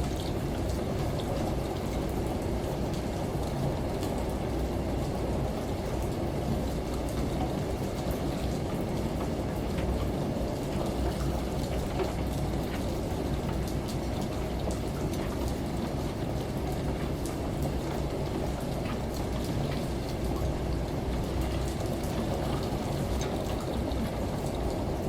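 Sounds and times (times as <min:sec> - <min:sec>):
washing machine humming: 0:00.0 - 0:25.0
falling water: 0:07.5 - 0:25.0.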